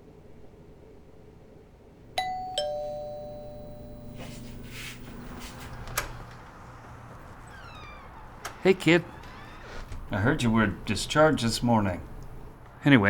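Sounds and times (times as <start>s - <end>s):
two-note doorbell chime: 2.2s - 5.7s
faint scuffing: 3.8s - 6.1s.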